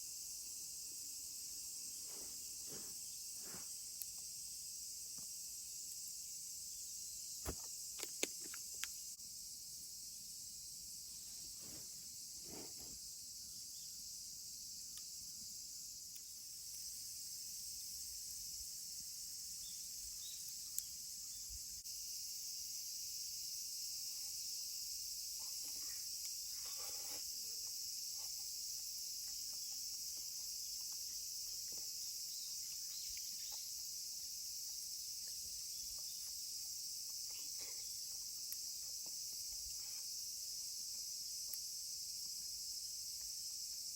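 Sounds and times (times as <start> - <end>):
chorus of summer insects: 0.0 - 43.9.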